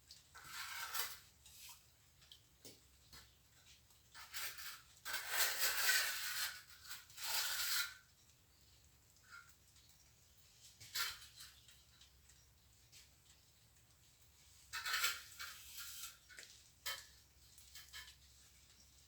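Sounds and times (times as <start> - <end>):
trowel scraping mortar: 4.2 - 8.0, 14.7 - 16.3.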